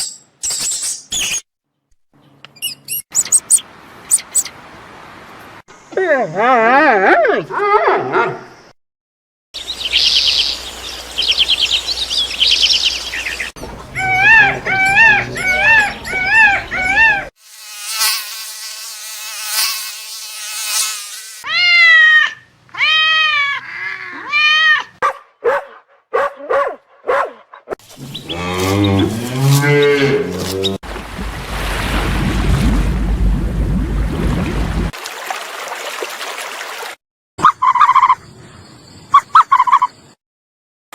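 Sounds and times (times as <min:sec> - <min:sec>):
low drawn-out animal call: 0:13.6 - 0:17.3
short arching animal calls: 0:13.9 - 0:17.3
animal buzzing: 0:14.0 - 0:21.5, 0:27.9 - 0:30.8.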